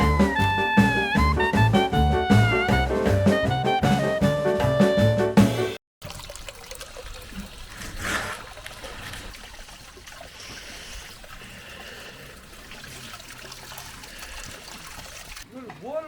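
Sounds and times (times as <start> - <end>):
water trickling: 6.0 - 16.0.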